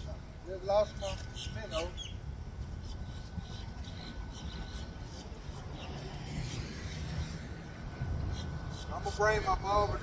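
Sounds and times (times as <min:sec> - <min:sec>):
distant road traffic rumble: 0:03.8 - 0:10.0.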